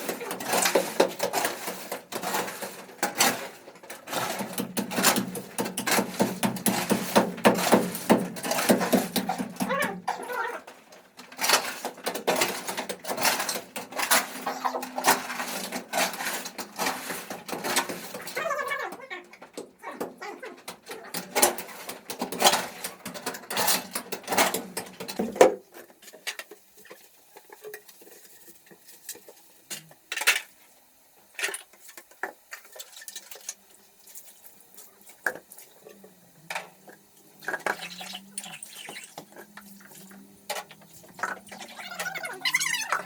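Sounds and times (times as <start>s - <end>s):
dishes and utensils clattering: 0.0s - 10.4s, 11.2s - 26.5s, 37.4s - 43.0s.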